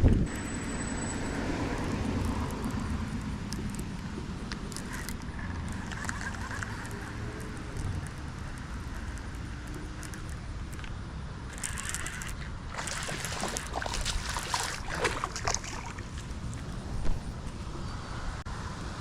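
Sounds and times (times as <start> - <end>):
wind rumble on microphone: 0.0 - 0.4, 12.5 - 19.0
water splashing and sloshing: 11.5 - 17.6.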